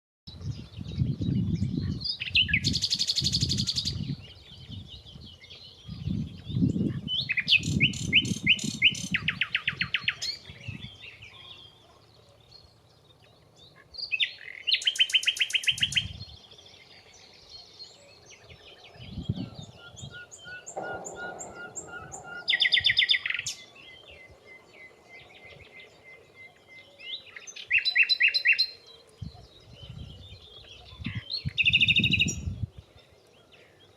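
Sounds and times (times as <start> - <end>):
nightingale singing: 0.3 - 33.9
low rumbling: 18.9 - 24.0.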